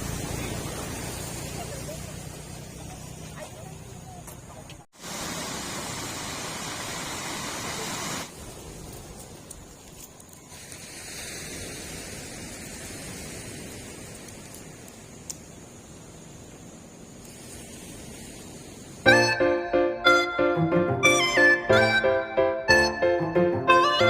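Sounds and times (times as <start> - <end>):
motorcycle road noise: 0.0 - 8.3.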